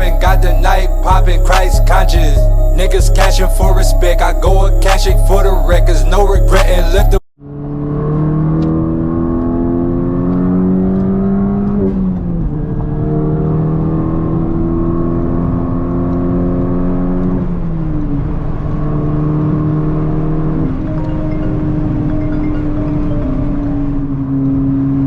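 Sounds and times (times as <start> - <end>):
car engine accelerating hard: 7.4 - 20.9.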